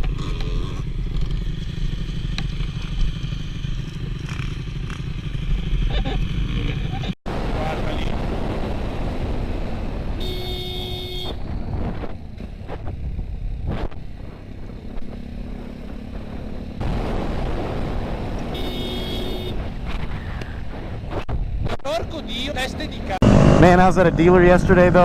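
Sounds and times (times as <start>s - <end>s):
wind and road rumble: 0.0s - 25.0s
vehicle horn honking: 10.2s - 11.4s, 18.5s - 19.6s.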